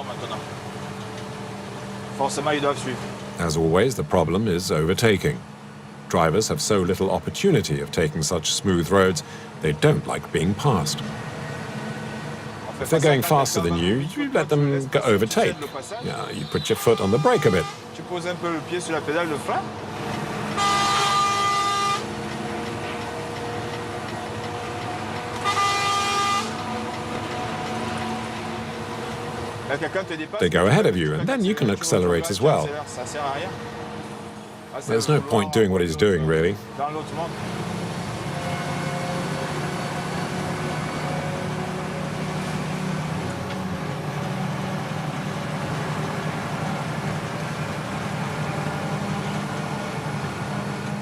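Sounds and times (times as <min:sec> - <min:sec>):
truck engine droning: 0:00.0 - 0:51.0
vehicle horn blasts: 0:15.5 - 0:18.0, 0:20.5 - 0:22.2, 0:25.4 - 0:26.6.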